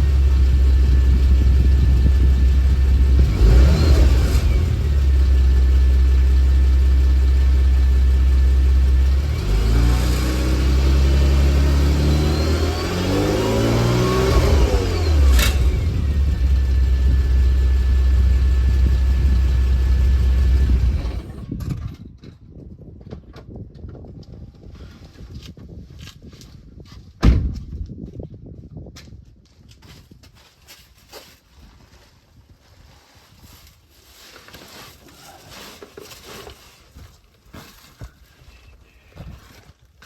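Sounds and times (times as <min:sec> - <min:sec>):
car engine idling and revving: 0:00.0 - 0:21.5.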